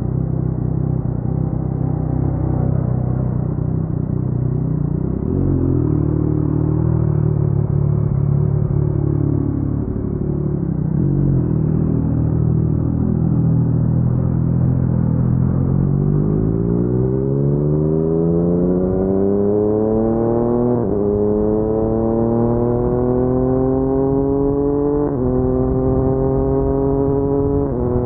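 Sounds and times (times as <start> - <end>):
motorcycle engine rumbling: 0.0 - 16.5.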